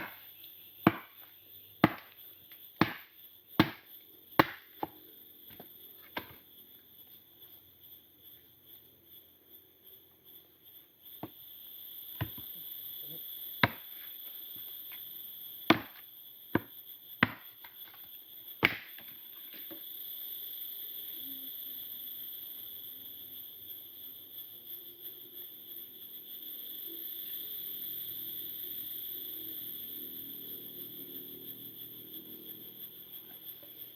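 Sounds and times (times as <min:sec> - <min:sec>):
wood chopping strikes: 0:00.0 - 0:02.2, 0:02.8 - 0:06.4, 0:12.2 - 0:12.5, 0:13.6 - 0:13.9, 0:15.7 - 0:16.0, 0:16.6 - 0:17.5, 0:18.6 - 0:19.0
insects chirring: 0:00.0 - 0:33.9.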